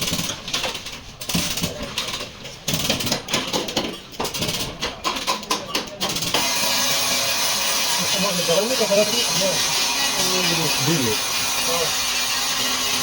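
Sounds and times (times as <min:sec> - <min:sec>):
tools and metal parts clattering: 0:00.0 - 0:06.3.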